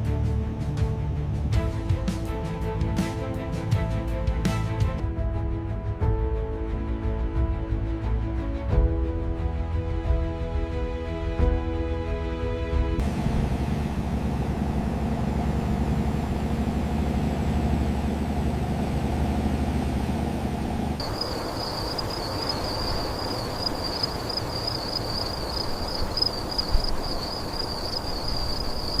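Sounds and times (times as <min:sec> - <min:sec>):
low mechanical rumble: 0:13.0 - 0:29.0
hiss with high wavering tone: 0:21.0 - 0:29.0.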